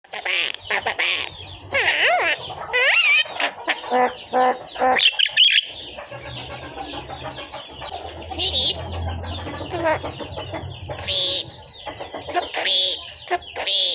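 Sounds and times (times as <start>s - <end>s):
bird shrill calls: 5.0s - 5.8s.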